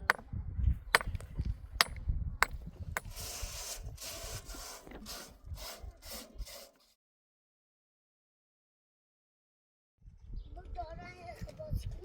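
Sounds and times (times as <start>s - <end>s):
sharp knocks: 1.0s - 3.1s
quick rasping scrapes: 3.0s - 6.9s.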